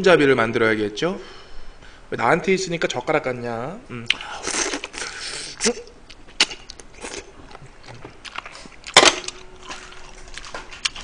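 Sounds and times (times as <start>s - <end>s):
person biting and chewing: 4.1s - 11.0s.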